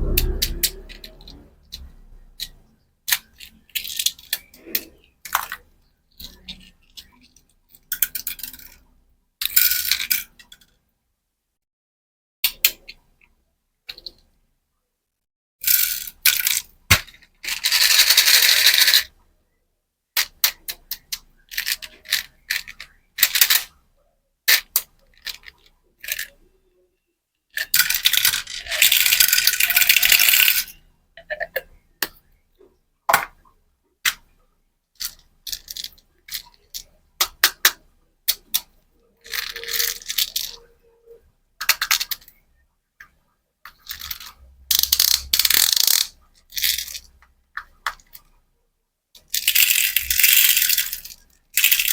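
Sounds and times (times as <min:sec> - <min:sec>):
hard candies clicking: 0:43.8 - 0:48.2.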